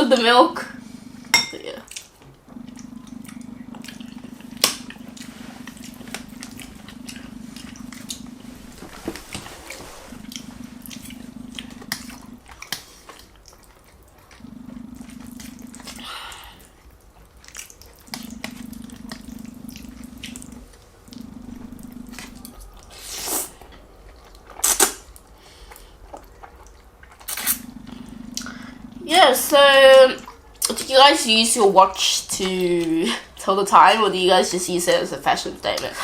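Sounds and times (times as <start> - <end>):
low hum: 0.0 - 12.6, 14.2 - 17.1, 17.8 - 23.0, 27.3 - 30.3
chewing with wet mouth clicks: 1.9 - 8.3, 10.2 - 14.4, 16.6 - 21.3, 23.6 - 28.7
slurps: 1.9 - 29.0.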